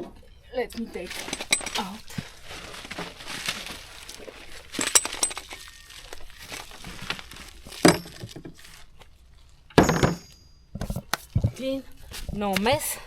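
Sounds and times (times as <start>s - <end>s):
sharp knocks: 9.8s - 10.9s.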